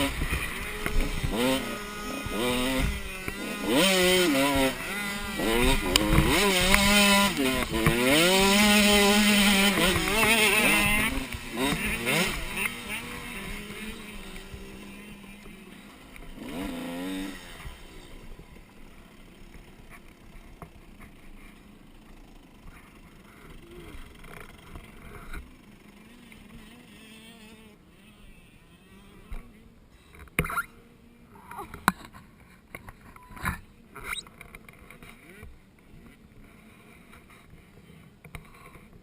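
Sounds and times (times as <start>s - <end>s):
dirt bike engine revving: 0.0s - 29.7s.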